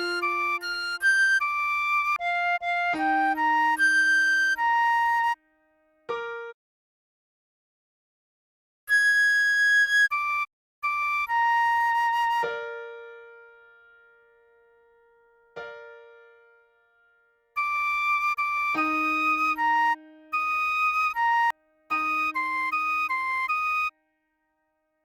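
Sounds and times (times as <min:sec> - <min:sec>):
piano accompaniment: 0:00.0 - 0:05.4, 0:06.0 - 0:06.6, 0:12.4 - 0:23.8
recorder melody: 0:00.0 - 0:05.4, 0:17.6 - 0:23.9.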